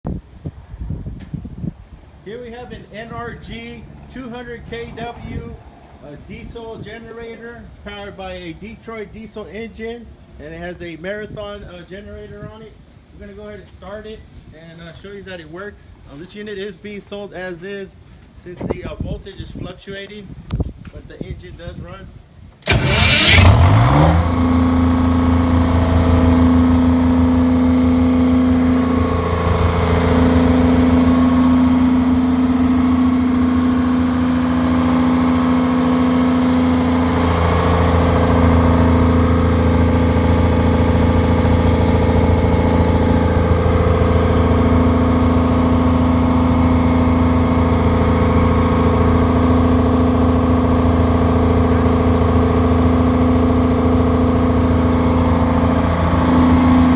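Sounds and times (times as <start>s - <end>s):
diesel generator starting and running: 2.1s - 9.3s, 22.6s - 56.9s.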